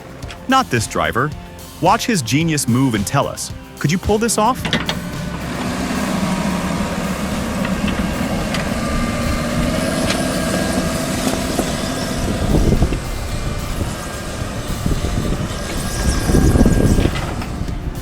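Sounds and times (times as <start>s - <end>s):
diesel engine running: 0.0s - 18.0s
loud low rumble: 0.6s - 18.0s.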